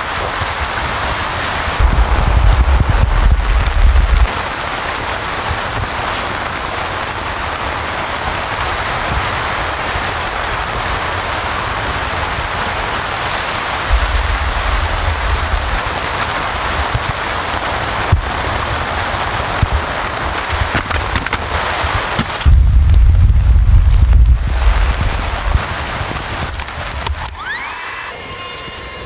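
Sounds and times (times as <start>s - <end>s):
steady rain: 0.0s - 29.0s
low rumble: 1.6s - 5.3s, 13.8s - 17.1s, 22.5s - 27.1s.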